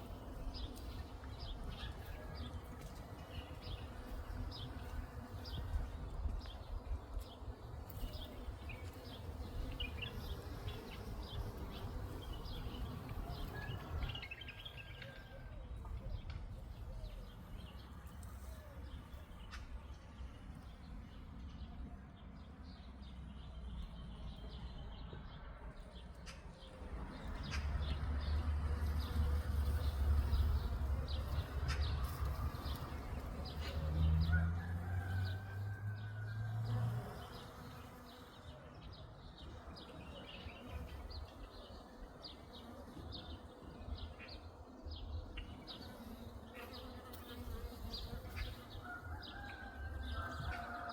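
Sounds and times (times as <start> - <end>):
bee buzzing: 0.0 - 14.0, 28.0 - 34.2, 36.6 - 38.6, 39.5 - 48.9.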